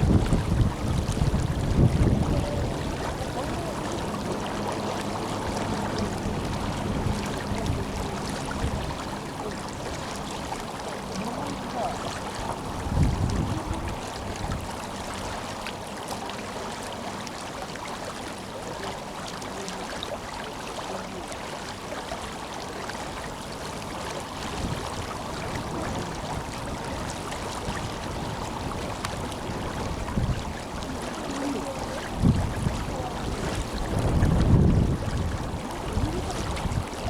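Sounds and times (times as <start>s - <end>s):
wind gust on microphone: 0.0s - 10.4s, 11.1s - 15.4s, 24.4s - 37.0s
river rushing: 0.0s - 37.0s.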